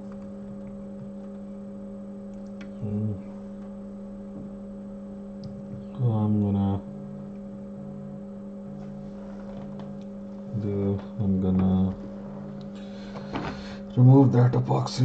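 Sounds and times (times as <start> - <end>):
electrical mains hum: 0.0 - 15.0
person murmuring: 2.7 - 3.3.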